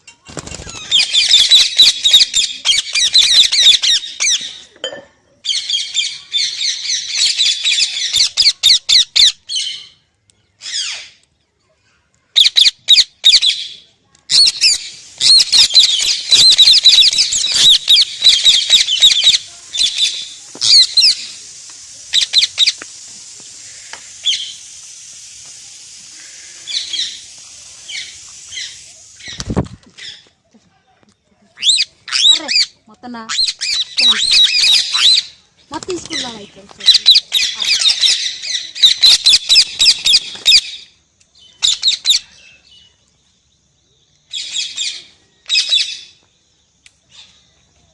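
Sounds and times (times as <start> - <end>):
parrot chattering and squawking: 0.9 - 4.5, 14.3 - 21.3, 31.6 - 35.4, 36.8 - 40.8.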